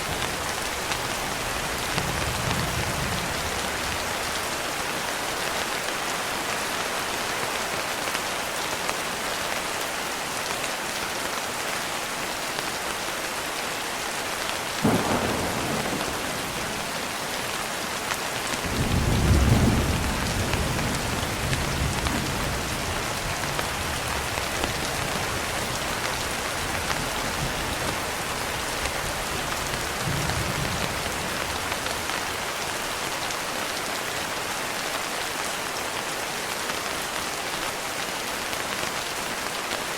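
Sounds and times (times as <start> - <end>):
heavy rain falling: 0.0 - 39.9
thunder crack: 14.8 - 17.0
rolling thunder rumble: 14.8 - 17.4, 18.6 - 25.5.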